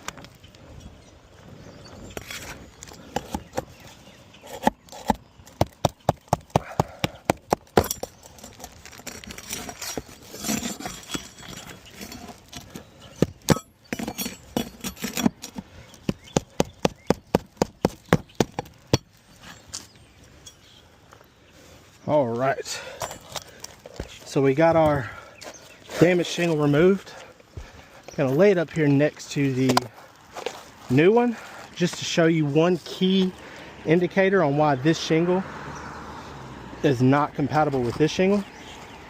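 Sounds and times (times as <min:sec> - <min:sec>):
tools knocking on shingles: 0:04.6 - 0:08.2, 0:10.5 - 0:19.1.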